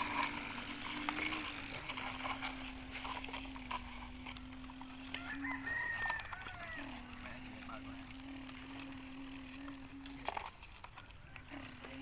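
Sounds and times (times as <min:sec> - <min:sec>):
steady low hum: 0:00.0 - 0:12.0
rooster crowing: 0:05.0 - 0:07.2.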